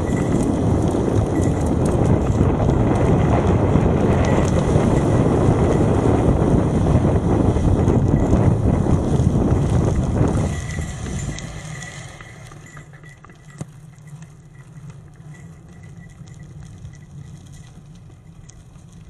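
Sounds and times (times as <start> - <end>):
bicycle tyre rumble: 0.0 - 19.0
wind buffeting microphone: 0.0 - 19.0
light clicks and ticks: 9.9 - 19.0.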